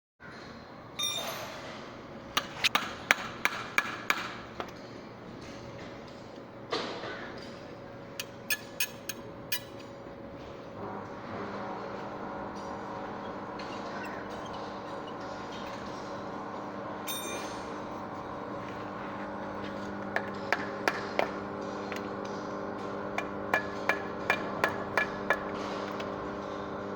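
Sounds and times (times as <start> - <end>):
steady machine hum: 0.3 - 26.9
ringing metallic ping: 1.0 - 1.6, 17.1 - 17.8
hammer striking metal: 17.1 - 17.8, 23.2 - 25.7.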